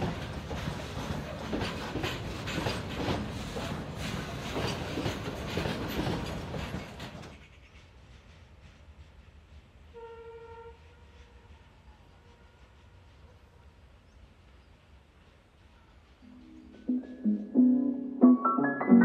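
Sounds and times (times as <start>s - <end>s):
freight train wheels clicking: 0.0s - 10.0s
distant train rumble: 0.0s - 18.3s
train horn: 9.9s - 12.8s.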